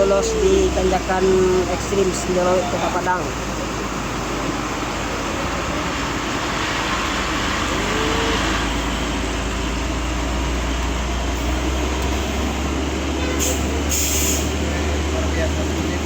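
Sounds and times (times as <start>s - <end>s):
truck engine under load: 0.0s - 16.0s
short high hisses: 13.5s - 14.5s.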